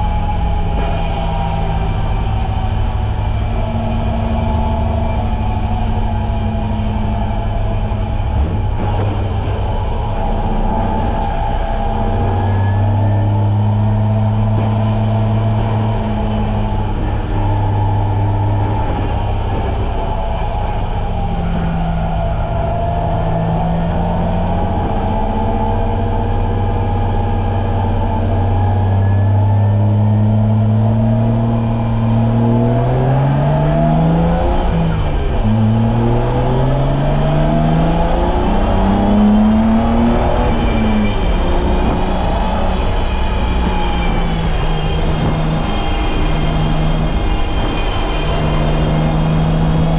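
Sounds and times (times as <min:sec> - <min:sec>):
race car engine revving: 0:00.0 - 0:49.9.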